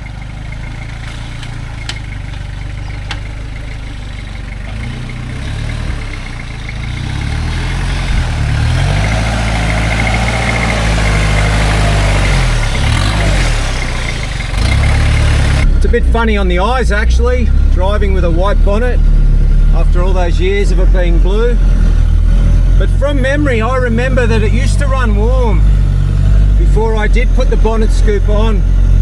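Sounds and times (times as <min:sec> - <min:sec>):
diesel engine idling and revving: 0:00.0 - 0:29.0.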